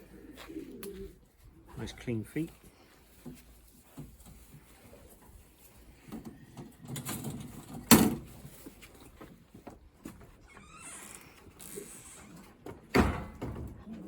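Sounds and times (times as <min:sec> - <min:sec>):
rustling and knocking: 0:03.1 - 0:10.4.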